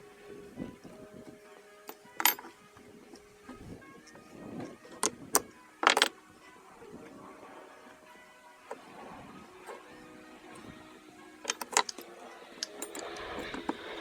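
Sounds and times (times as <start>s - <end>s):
quiet background music: 0.0s - 14.0s
metal tools clinking on engine parts: 1.9s - 2.6s, 5.8s - 6.1s, 11.4s - 14.0s.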